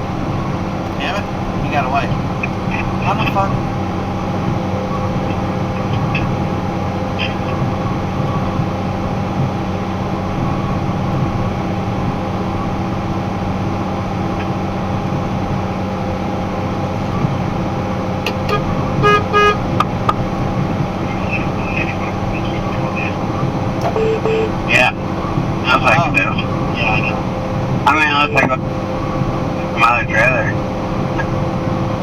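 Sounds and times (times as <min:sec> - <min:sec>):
truck engine and road drone: 0:00.0 - 0:32.0
vehicle horn toots: 0:18.3 - 0:19.8, 0:23.8 - 0:24.6.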